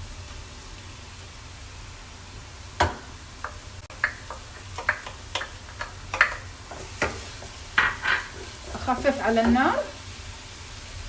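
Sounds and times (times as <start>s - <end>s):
onions frying: 0.0s - 11.0s
spoon scraping cookware: 3.4s - 10.0s.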